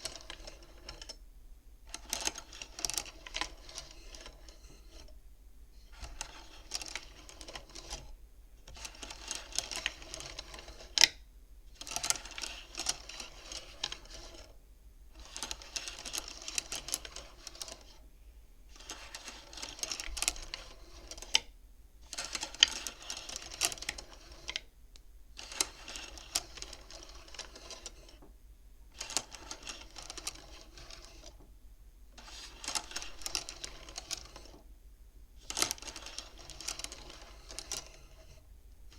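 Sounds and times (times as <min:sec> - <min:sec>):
abacus beads clacking: 0:32.2 - 0:34.5.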